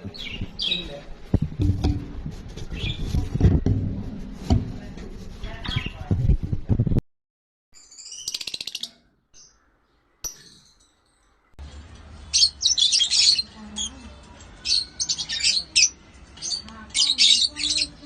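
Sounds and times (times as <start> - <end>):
lovebirds chirping: 0.0 - 2.0, 2.6 - 3.5, 7.8 - 11.5, 12.1 - 18.0
knocks: 1.3 - 2.4.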